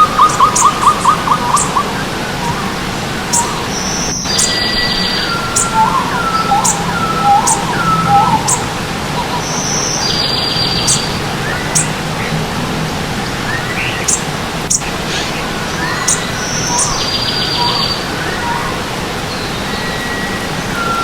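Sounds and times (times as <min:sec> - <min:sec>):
stream rushing: 0:00.0 - 0:21.0
buzzy bird trill: 0:02.5 - 0:12.3, 0:13.5 - 0:14.9, 0:15.8 - 0:18.7
bird whistled notes: 0:03.3 - 0:11.9, 0:15.8 - 0:18.7, 0:19.3 - 0:21.0
thin high bird chirps: 0:03.3 - 0:12.0, 0:15.8 - 0:18.6.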